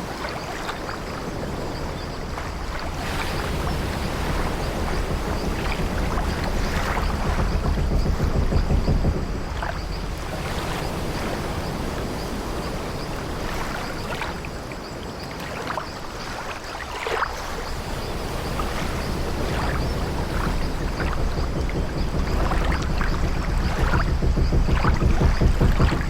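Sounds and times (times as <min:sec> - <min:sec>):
waves washing against wooden ship: 0:00.0 - 0:26.0
ship timbers creaking: 0:01.4 - 0:13.5, 0:17.7 - 0:26.0.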